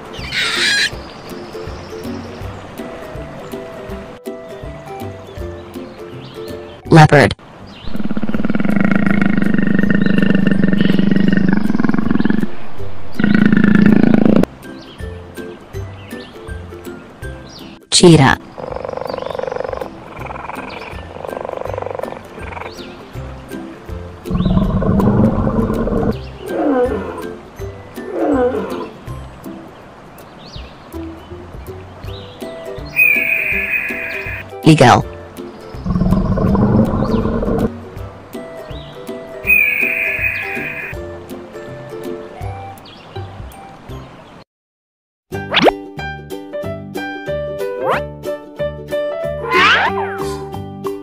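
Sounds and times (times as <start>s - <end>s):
background music with steady beat: 0.9s - 6.8s, 29.0s - 42.9s
big cat roaring: 13.2s - 14.5s, 24.3s - 27.3s, 28.0s - 29.0s.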